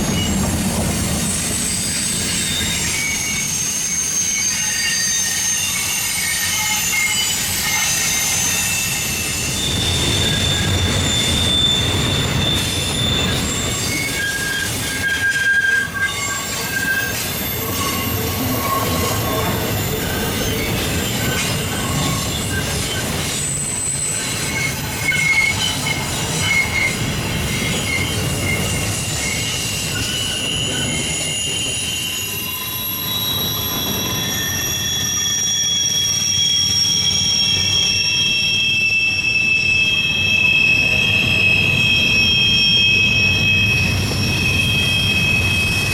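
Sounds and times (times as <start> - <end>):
freight train rumble: 0.0 - 45.9
train wheels squealing on rails: 0.0 - 45.9.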